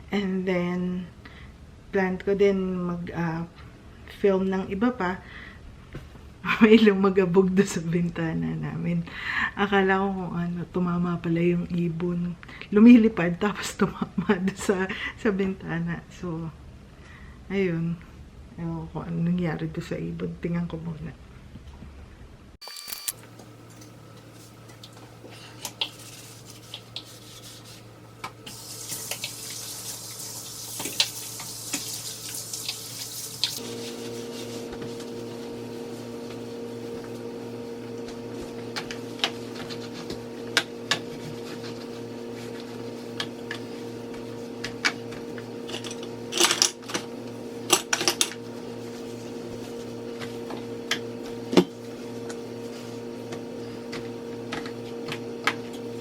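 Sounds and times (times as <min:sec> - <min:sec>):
electric hum: 0:22.6 - 0:56.0
tap running: 0:28.2 - 0:33.6, 0:38.0 - 0:41.9, 0:53.3 - 0:55.8.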